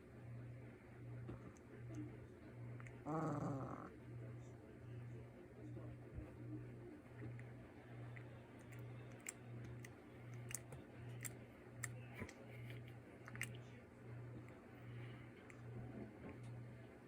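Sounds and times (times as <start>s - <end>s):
puppies mouth clicks and smacks: 8.1s - 13.6s.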